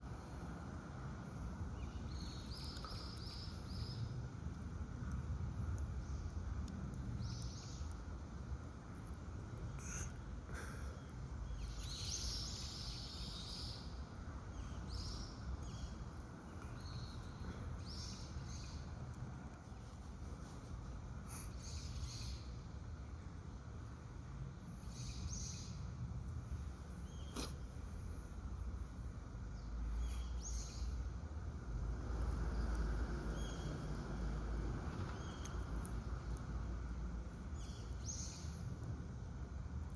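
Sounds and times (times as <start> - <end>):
outdoor background noise: 0.0 - 39.9.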